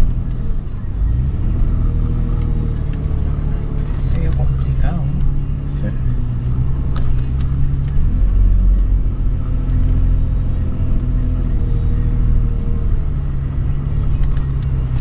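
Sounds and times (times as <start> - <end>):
engine rumbling under load: 0.0 - 15.0.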